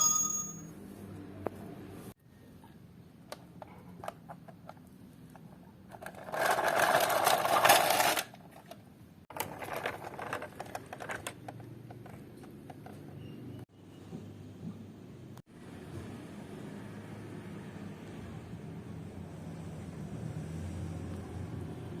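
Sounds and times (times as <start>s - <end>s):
toy cars clicking and knocking: 5.9s - 8.4s, 9.3s - 13.0s
toy cars rattling: 5.9s - 12.9s.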